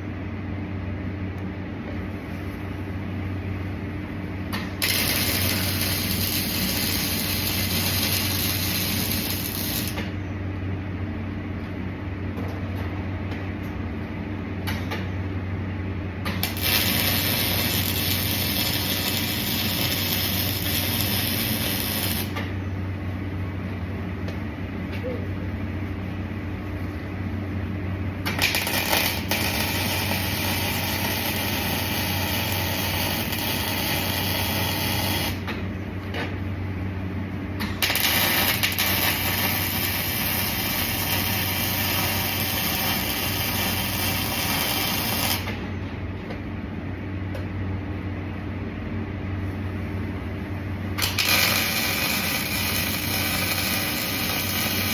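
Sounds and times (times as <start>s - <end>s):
welding machine electrical hum: 0.0s - 54.9s
welding arc crackling: 4.5s - 10.1s, 16.2s - 22.6s, 28.2s - 36.2s, 37.6s - 45.6s, 50.9s - 54.9s.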